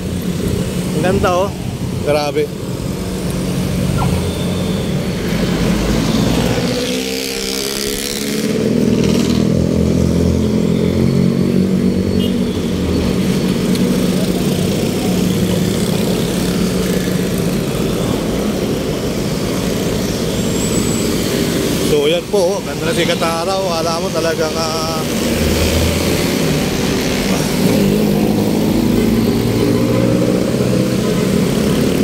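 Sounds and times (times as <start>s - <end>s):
road traffic engines: 0.0s - 32.0s
vehicle passing close by: 5.1s - 11.8s.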